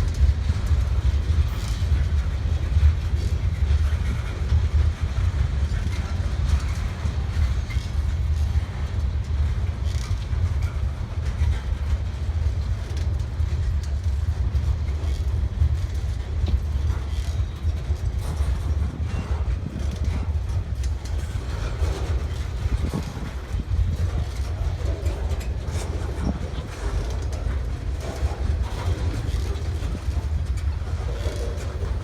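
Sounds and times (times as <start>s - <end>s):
freight train rumbling on rails: 0.0s - 32.0s.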